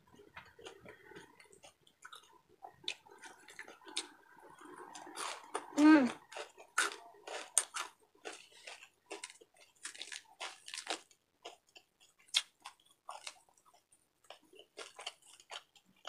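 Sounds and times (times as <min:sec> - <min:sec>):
crunchy chewing: 0:00.1 - 0:16.0
crisp pork cracking apart: 0:09.2 - 0:11.1.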